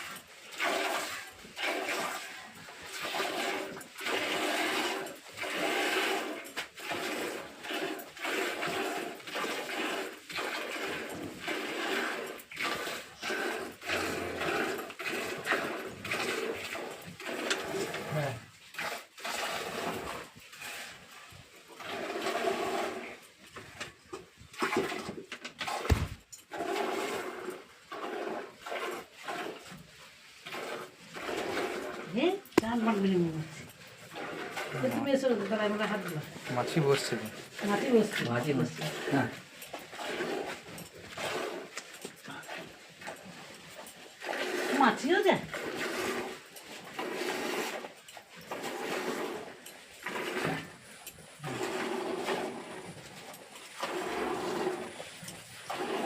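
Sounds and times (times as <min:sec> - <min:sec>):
milk squirting into a pail: 0:00.0 - 0:56.0
thump: 0:25.7 - 0:26.2.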